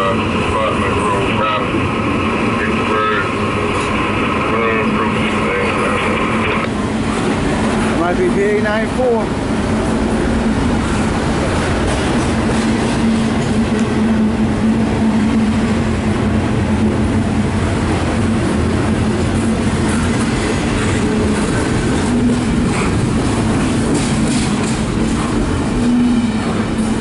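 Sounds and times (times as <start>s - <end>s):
train wheels rumbling and rattling: 0.0s - 27.0s.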